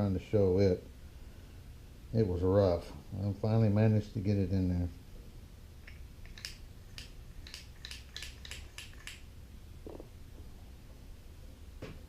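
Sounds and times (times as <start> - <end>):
small parts clicking and tapping: 5.8 - 9.2.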